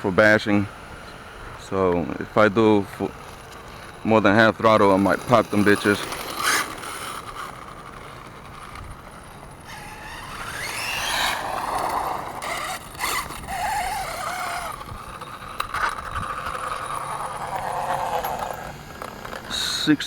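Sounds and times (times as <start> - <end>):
rc truck drivetrain whining: 0.0 - 20.0.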